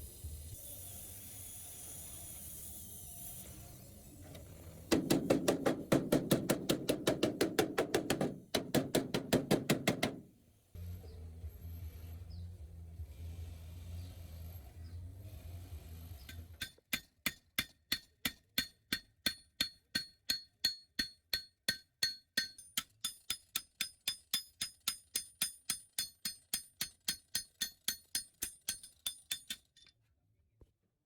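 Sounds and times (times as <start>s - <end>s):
hammer striking metal: 4.9s - 10.3s.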